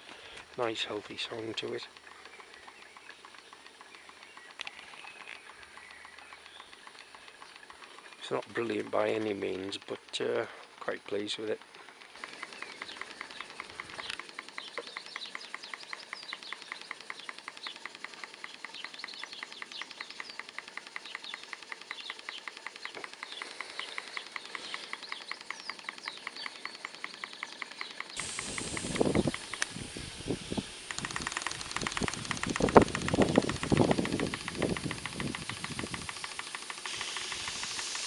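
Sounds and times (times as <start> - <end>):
steam engine chuffing: 0.0 - 38.0
steam hissing: 11.6 - 38.0.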